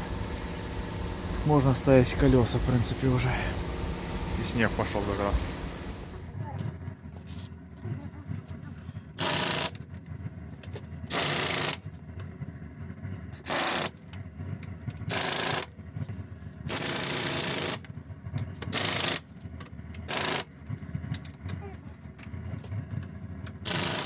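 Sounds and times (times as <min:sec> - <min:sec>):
pneumatic impact wrench bursts: 0:00.0 - 0:06.3, 0:09.2 - 0:09.8, 0:11.1 - 0:11.8, 0:13.4 - 0:13.9, 0:15.1 - 0:15.7, 0:16.7 - 0:17.8, 0:18.7 - 0:19.2, 0:20.1 - 0:20.5, 0:23.6 - 0:24.0.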